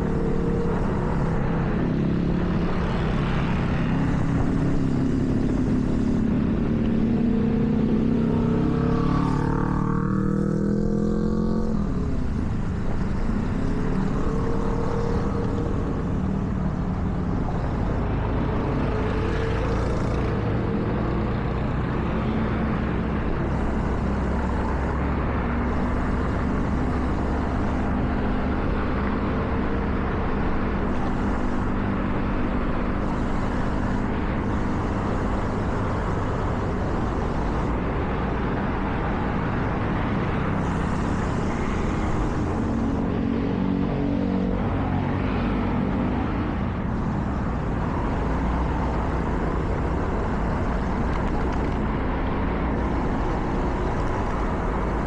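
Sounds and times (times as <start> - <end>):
car engine accelerating: 0.0 - 43.8, 45.4 - 55.0
tyres hissing on wet road: 23.0 - 43.2, 46.8 - 55.0.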